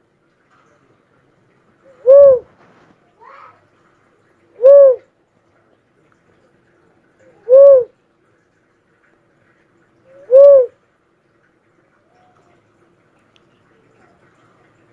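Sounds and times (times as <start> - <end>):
dove cooing: 1.9 - 2.5, 4.6 - 5.1, 7.3 - 7.9, 10.1 - 10.8.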